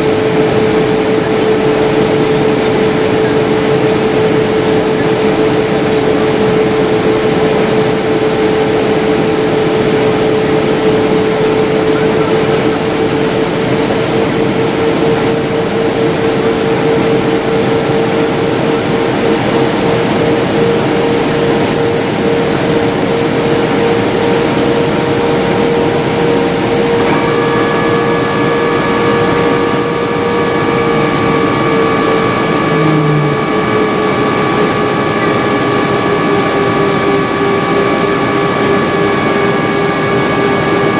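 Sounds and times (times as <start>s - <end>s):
humming tone: 0.0s - 40.9s
jet engines and airflow roaring: 0.0s - 40.9s
higher steady tones: 18.8s - 40.9s.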